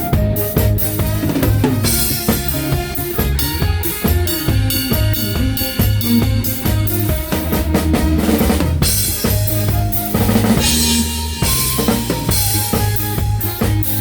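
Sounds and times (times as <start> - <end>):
drum kit beat: 0.0 - 14.0
live band playing: 0.0 - 14.0.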